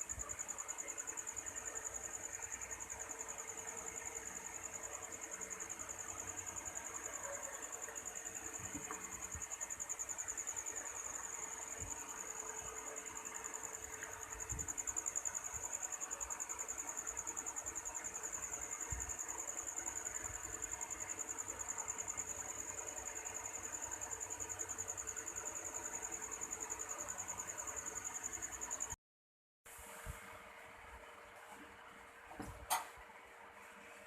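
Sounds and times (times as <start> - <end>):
crickets chirring: 0.1 - 29.0.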